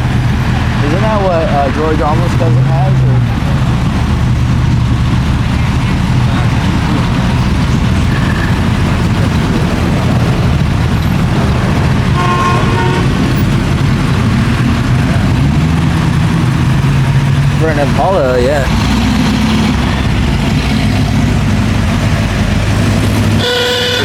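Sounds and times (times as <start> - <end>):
car engine running: 0.0 - 24.0
short car horn toot: 12.2 - 13.1, 23.4 - 24.0.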